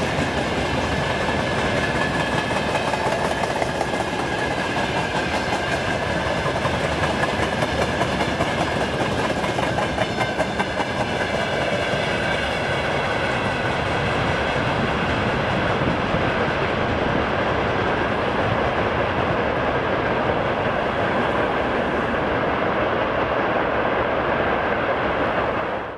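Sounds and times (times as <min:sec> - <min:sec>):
wheels clicking over rail joints: 0:00.0 - 0:12.7
train rumble: 0:00.0 - 0:25.9.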